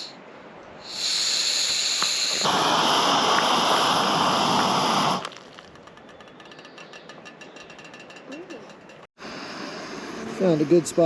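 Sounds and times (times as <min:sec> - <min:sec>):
gas burner rushing hiss: 0:00.8 - 0:05.3
gas hissing from valve: 0:00.8 - 0:05.3.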